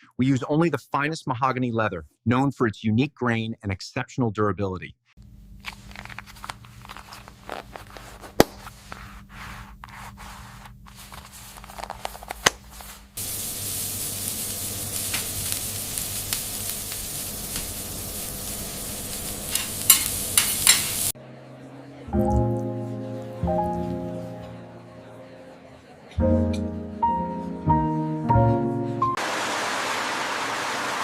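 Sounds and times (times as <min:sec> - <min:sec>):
sharp crackles: 0:13.2 - 0:21.1
steady hiss: 0:13.2 - 0:21.2.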